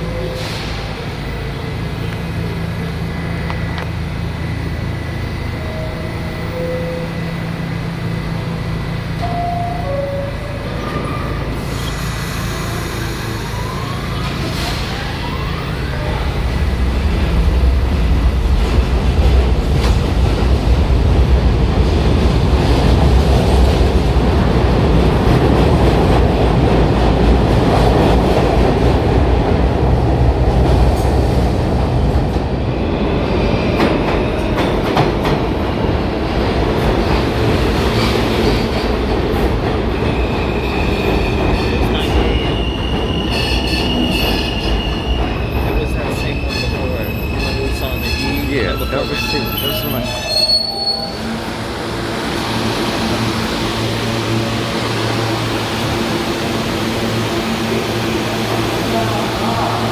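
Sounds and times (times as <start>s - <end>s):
train wheels rumbling on track: 0.0s - 59.9s
high-pitched wheel squeal: 40.2s - 51.4s.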